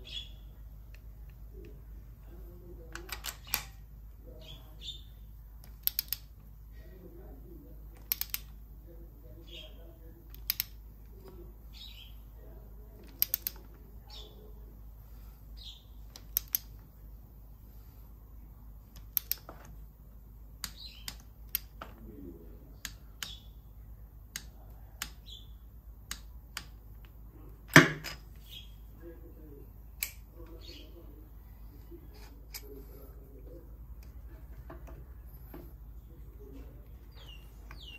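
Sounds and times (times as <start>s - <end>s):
birds chirping: 0.0s - 6.2s, 6.8s - 16.8s, 20.4s - 37.9s
tools clicking and tapping: 5.6s - 6.5s, 7.9s - 8.6s, 10.3s - 11.4s, 13.0s - 13.8s, 16.1s - 16.9s, 18.9s - 19.8s, 20.6s - 22.0s, 26.1s - 28.3s, 32.1s - 32.8s, 34.0s - 35.8s.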